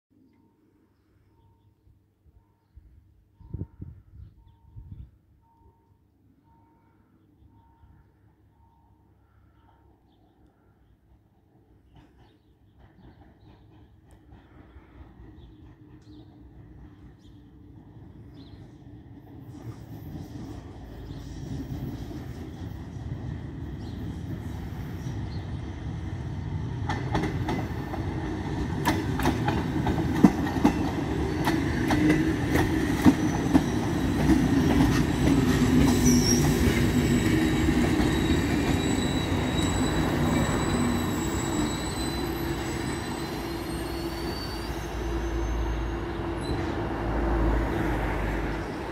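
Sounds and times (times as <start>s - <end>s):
wheels clicking over rail joints: 26.8s - 37.0s
wheel and brake squeal: 33.0s - 46.8s.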